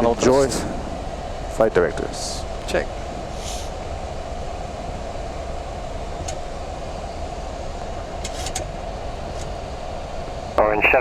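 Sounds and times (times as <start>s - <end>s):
low rumble: 0.0s - 3.4s
airflow and air-conditioning hum: 0.0s - 11.0s.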